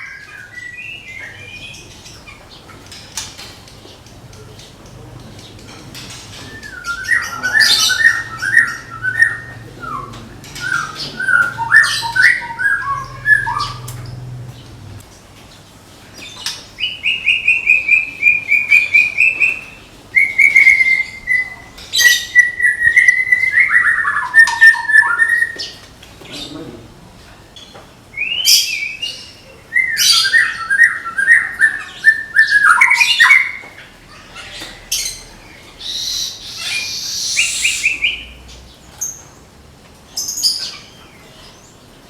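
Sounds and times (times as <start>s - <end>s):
bird singing whistled phrases: 6.4s - 14.0s, 16.8s - 25.7s, 28.2s - 33.6s, 35.9s - 38.4s.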